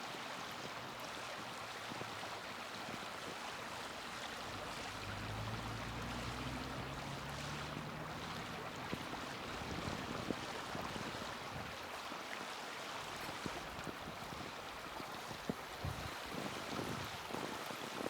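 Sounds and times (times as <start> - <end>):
low engine hum: 3.9 - 11.8.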